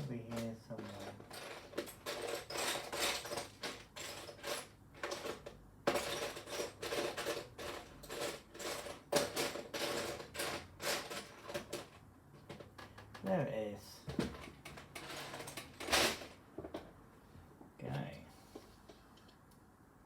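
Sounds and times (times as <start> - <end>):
hands rummaging through plastic bricks: 0.3 - 13.2.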